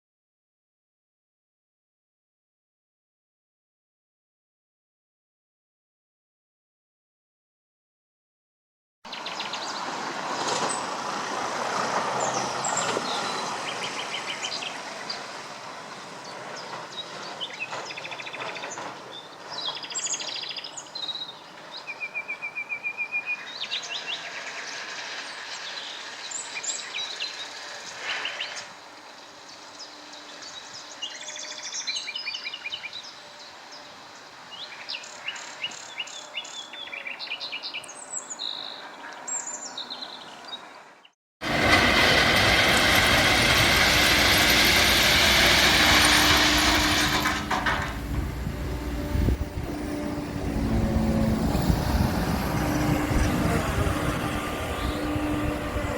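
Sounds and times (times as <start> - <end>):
songbirds chirping and trilling: 12.0 - 41.1, 45.5 - 55.9.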